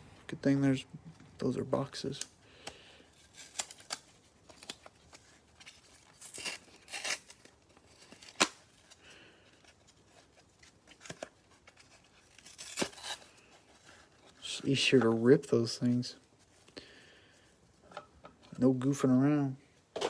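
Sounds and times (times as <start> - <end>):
cardboard boxes being ripped open: 12.4 - 13.3.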